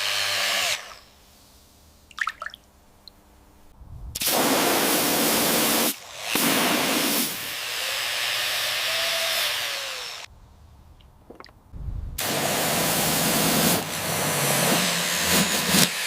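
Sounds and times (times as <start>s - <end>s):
hissing spray bursts: 4.2s - 7.5s, 12.2s - 16.0s.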